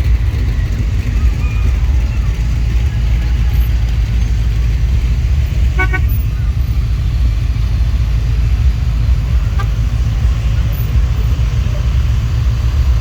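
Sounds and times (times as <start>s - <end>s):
steady low rumble: 0.0s - 13.0s
vehicle horn toot: 5.6s - 6.4s, 9.4s - 9.8s.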